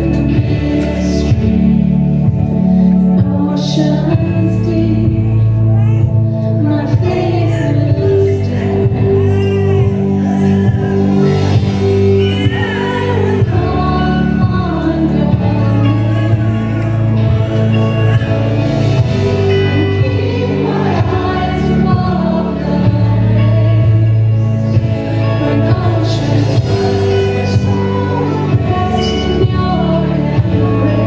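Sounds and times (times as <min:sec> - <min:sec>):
live band playing worship music: 0:00.0 - 0:31.0
voices singing a hymn: 0:06.5 - 0:31.0.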